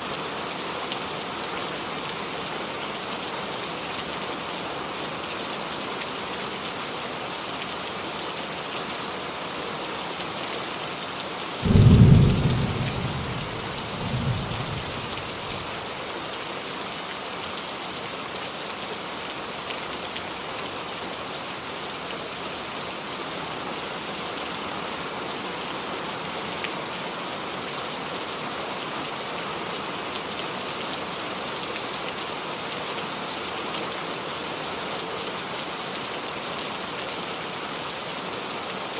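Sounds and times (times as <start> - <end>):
rain falling on a roof: 0.0 - 38.9
thunderclap: 11.6 - 15.4.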